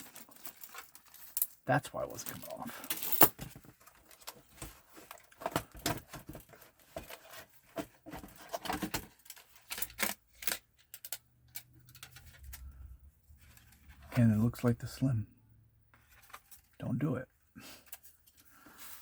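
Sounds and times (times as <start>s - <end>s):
plastic parts clicking and knocking: 3.2s - 12.8s.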